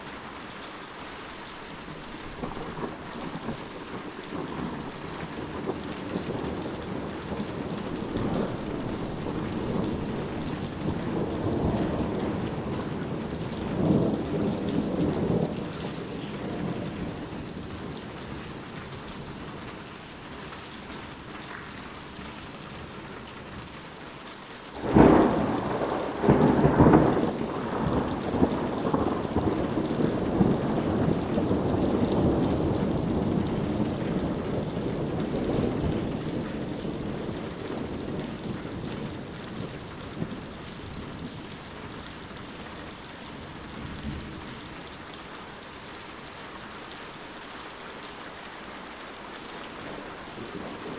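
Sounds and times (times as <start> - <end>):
steady rain: 0.0 - 50.9
thunder rumbling: 2.3 - 19.8, 24.8 - 44.9, 49.7 - 50.9
loud thunderclap: 2.4 - 18.4, 24.8 - 41.4, 49.8 - 50.9.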